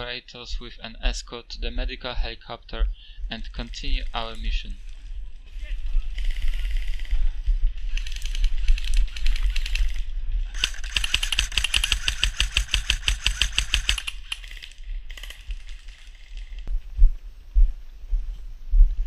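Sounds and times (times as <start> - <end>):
electric rifle firing rapid clicks: 8.0 - 16.5.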